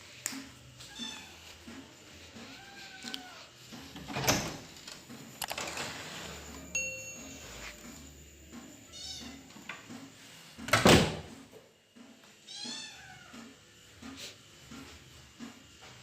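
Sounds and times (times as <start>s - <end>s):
cat meowing: 0.9s - 1.4s, 2.4s - 3.5s.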